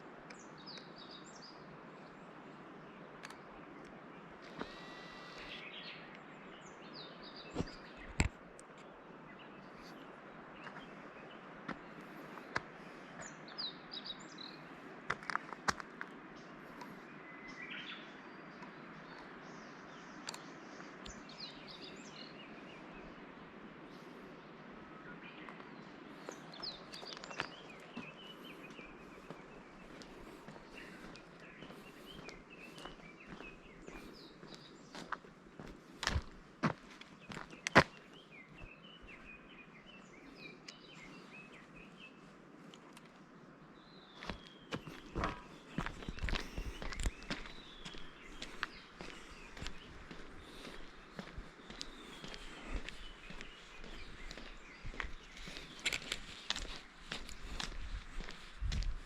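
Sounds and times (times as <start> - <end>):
steady background hiss: 0.0 - 32.6
songbirds singing: 0.0 - 59.0.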